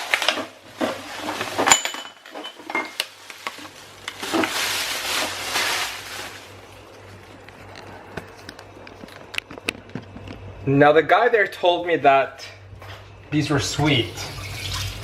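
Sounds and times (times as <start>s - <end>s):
bag rustling: 2.7s - 7.4s.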